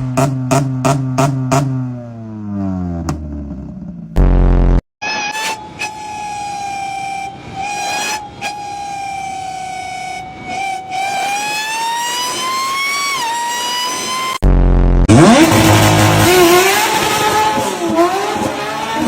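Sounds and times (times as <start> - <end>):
high whistling whine: 5.0 - 14.4.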